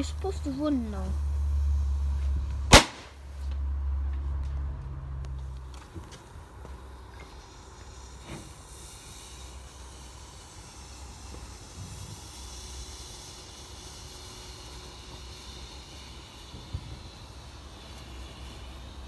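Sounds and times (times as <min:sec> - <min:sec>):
firework fountain hissing: 0:00.0 - 0:03.6, 0:05.4 - 0:19.0
sharp crack: 0:02.7 - 0:03.2.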